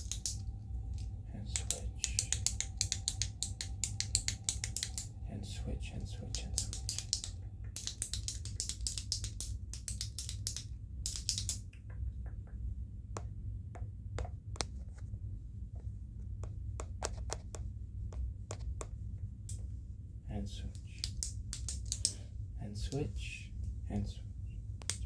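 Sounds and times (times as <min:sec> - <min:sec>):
sharp clicks: 0:00.0 - 0:05.2, 0:06.3 - 0:12.6, 0:20.7 - 0:22.2
low steady hum: 0:00.0 - 0:25.0.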